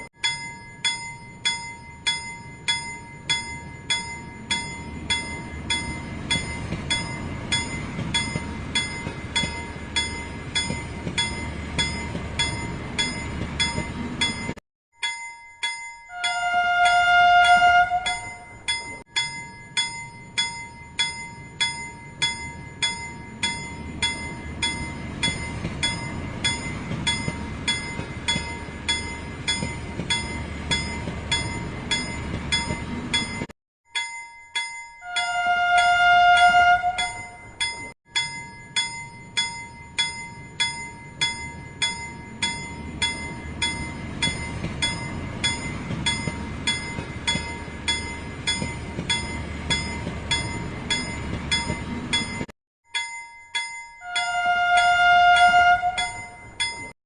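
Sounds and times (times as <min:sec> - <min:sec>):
toy train bell dinging: 0:00.0 - 0:57.0
toy train whistle toot: 0:16.1 - 0:18.3, 0:54.0 - 0:56.3.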